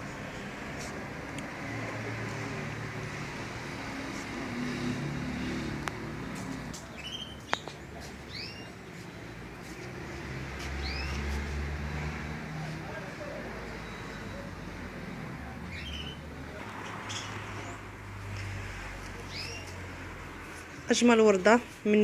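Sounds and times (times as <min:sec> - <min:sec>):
low hum of traffic: 0:00.0 - 0:22.0
small birds chirping: 0:06.5 - 0:09.9, 0:10.6 - 0:11.4, 0:15.7 - 0:16.3, 0:19.2 - 0:19.8.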